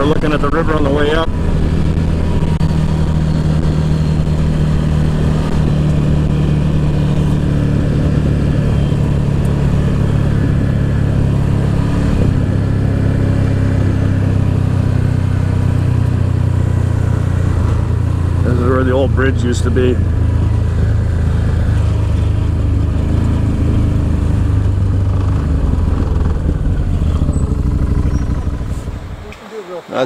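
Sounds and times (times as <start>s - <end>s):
vehicle engine running at low revs: 0.0s - 30.0s.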